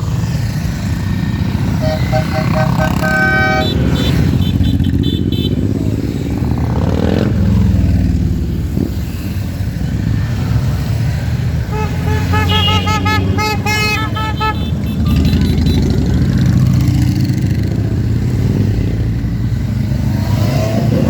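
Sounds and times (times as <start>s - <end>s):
motorcycle engines rumbling: 0.0s - 21.0s
horns tooting short beeps: 1.8s - 5.5s, 11.7s - 15.9s.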